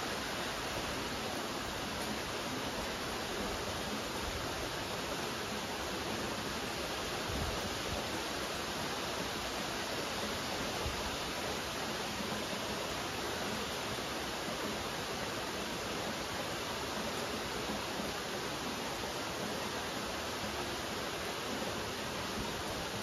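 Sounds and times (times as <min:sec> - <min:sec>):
steady rain hiss: 0:00.0 - 0:23.0.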